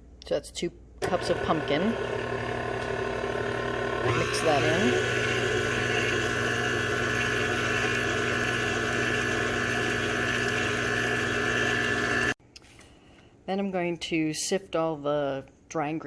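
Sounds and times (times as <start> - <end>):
electric mixer running: 1.0 - 12.4.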